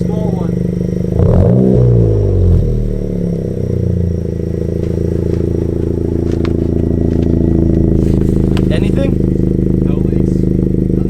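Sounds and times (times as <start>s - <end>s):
car engine revving and idling: 0.0s - 11.0s.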